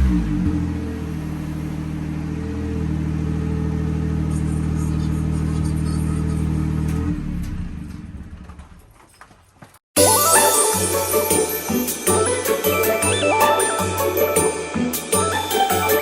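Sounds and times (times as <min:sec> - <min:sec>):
car engine running steadily: 0:00.0 - 0:08.9.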